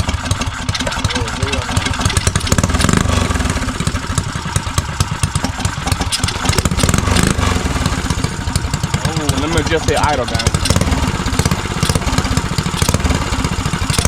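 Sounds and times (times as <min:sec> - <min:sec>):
mini bike engine lopey idle: 0:00.0 - 0:14.0.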